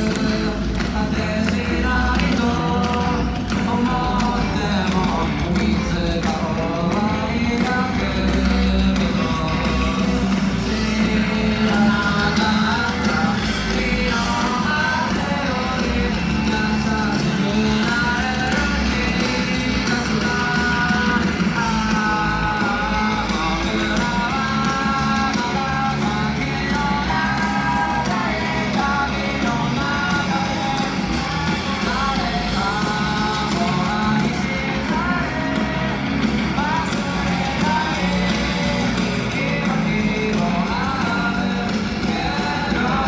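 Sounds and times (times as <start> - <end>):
pop-rock song with singing: 0.0 - 43.0.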